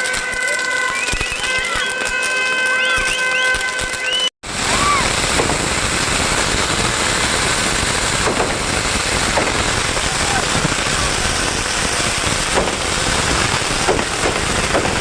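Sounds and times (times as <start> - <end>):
firework whistles: 0.0 - 15.0
fireworks crackling: 0.0 - 15.0
steady whistling tones: 0.8 - 2.0, 2.7 - 5.0.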